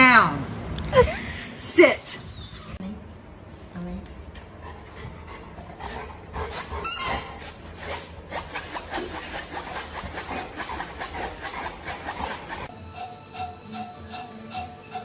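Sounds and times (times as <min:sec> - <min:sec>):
rhythmic rasping scrape: 0:07.4 - 0:15.0.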